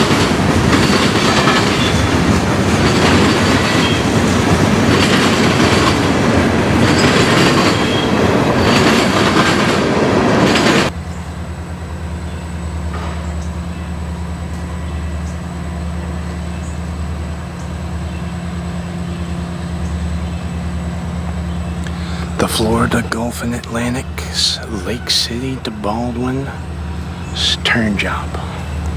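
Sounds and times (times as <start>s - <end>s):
freight train rolling past: 0.0s - 28.9s
rail clickety-clack: 0.0s - 28.9s
steady low hum: 10.9s - 28.9s.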